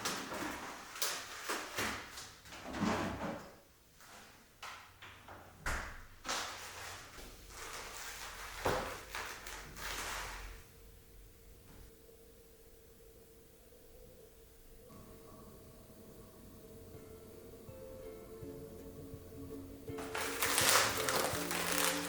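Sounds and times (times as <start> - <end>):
rustling: 6.2 - 10.6, 20.0 - 22.0.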